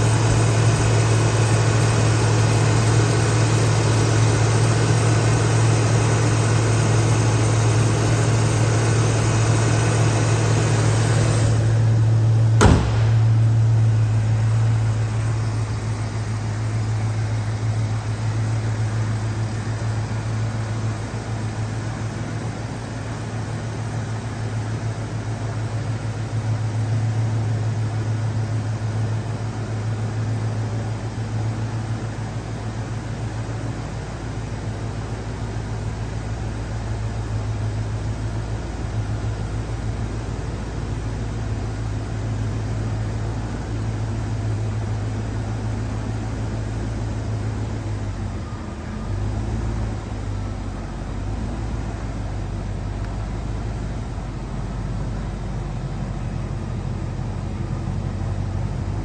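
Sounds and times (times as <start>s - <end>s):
car engine idling: 0.0s - 59.0s
sharp knock: 12.6s - 13.8s.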